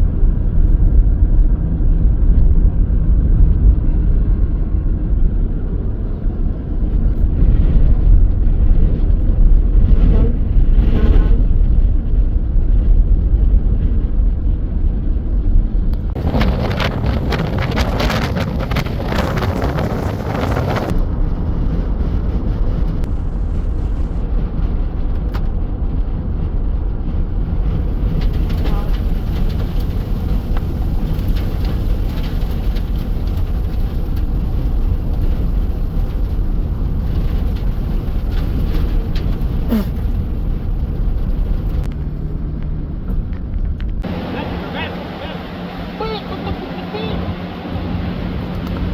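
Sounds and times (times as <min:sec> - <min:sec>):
strong wind buffeting microphone: 0:00.0 - 0:48.9
hissing wind gust: 0:15.9 - 0:24.4, 0:44.0 - 0:48.9.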